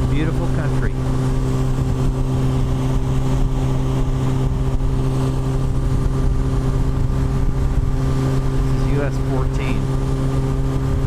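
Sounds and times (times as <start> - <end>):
motorcycle engine cruising: 0.0 - 11.0
steady rushing noise: 0.0 - 11.0.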